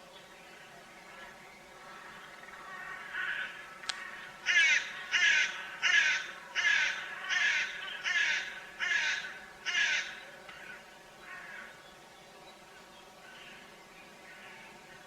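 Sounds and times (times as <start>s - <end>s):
bird harsh calls: 1.1s - 11.8s.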